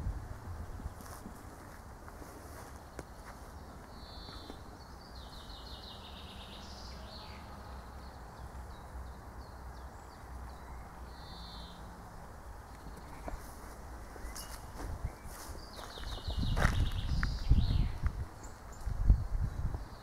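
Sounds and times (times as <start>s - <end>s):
steady low rumble: 0.0s - 2.3s
songbirds singing: 0.0s - 20.0s.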